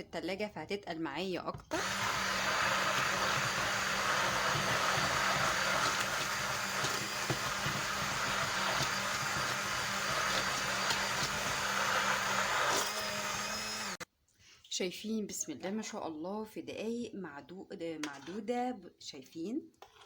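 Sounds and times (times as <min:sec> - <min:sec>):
hand blender motor humming: 0:01.7 - 0:14.0.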